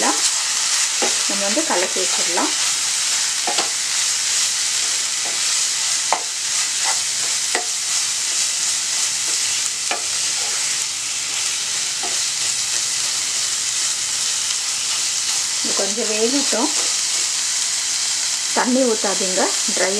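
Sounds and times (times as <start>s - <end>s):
chicken stuffing sizzling in pan: 0.0s - 19.9s
spatula scraping and knocking pan: 3.4s - 3.8s.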